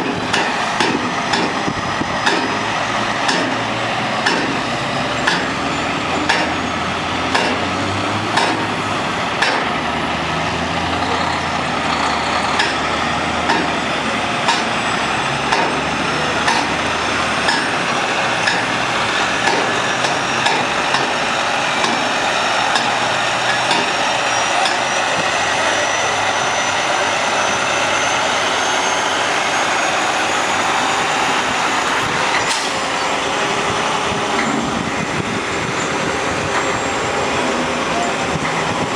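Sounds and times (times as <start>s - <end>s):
sharp knocks: 0.0s - 2.7s, 3.3s - 6.6s, 7.3s - 8.8s, 9.4s - 9.8s, 12.5s - 13.8s, 14.5s - 14.8s, 15.5s - 16.8s, 17.4s - 17.8s, 19.4s - 21.2s, 21.8s - 24.0s
diesel truck engine running: 0.0s - 38.9s.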